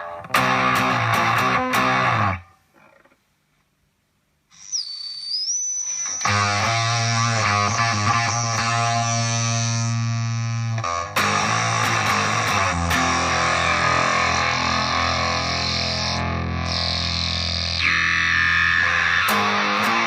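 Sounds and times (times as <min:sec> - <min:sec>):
fuzzed electric guitar chords: 0:00.0 - 0:02.5, 0:06.0 - 0:20.0
high whistling tone: 0:04.5 - 0:07.0.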